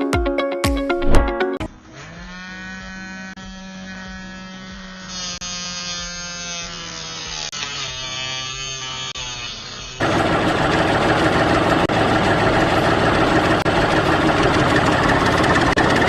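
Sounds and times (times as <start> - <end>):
small electric motor whining: 1.7 - 10.1.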